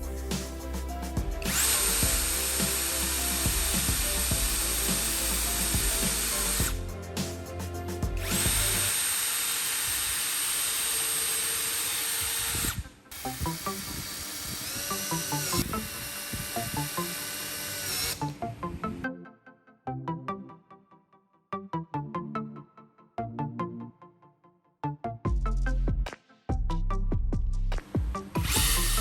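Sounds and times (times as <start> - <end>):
background music: 0.0 - 9.7, 11.6 - 29.0
electric drill whining: 1.4 - 6.8, 8.2 - 18.4, 28.4 - 29.0.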